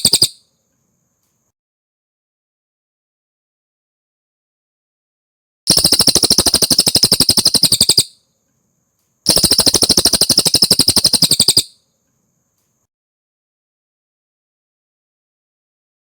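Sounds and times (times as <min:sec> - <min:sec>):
bird singing high trills: 0:00.0 - 0:00.4, 0:05.7 - 0:08.2, 0:09.3 - 0:11.8.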